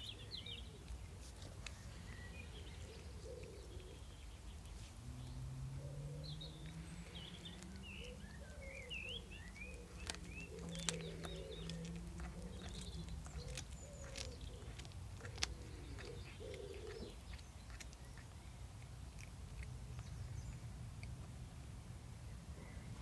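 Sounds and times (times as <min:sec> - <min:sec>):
birds cooing: 0:00.0 - 0:18.2.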